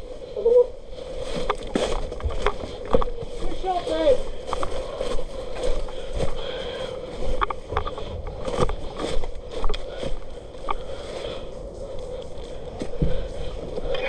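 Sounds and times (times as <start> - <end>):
steady rustling: 0.0 - 14.0.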